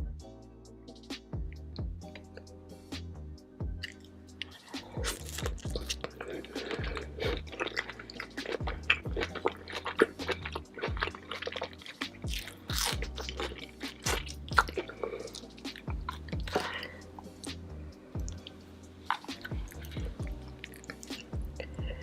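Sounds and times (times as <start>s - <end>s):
quiet background music: 0.0s - 22.0s
wet chewing and mouth smacks: 3.8s - 17.6s, 18.2s - 22.0s.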